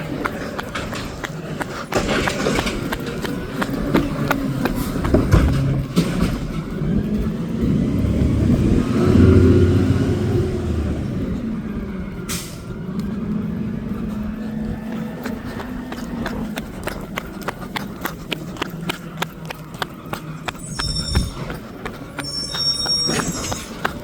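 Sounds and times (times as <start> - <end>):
garbage truck engine revving: 0.0 - 20.8.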